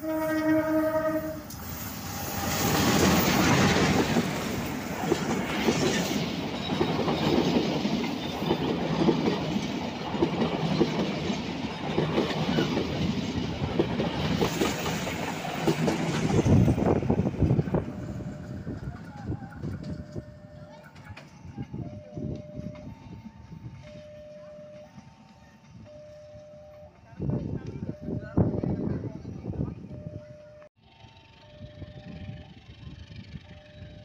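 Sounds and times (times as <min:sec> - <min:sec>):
train horn: 0:00.0 - 0:01.6
locomotive engine passing: 0:00.0 - 0:34.0
wheels clacking over rail joints: 0:02.4 - 0:27.1.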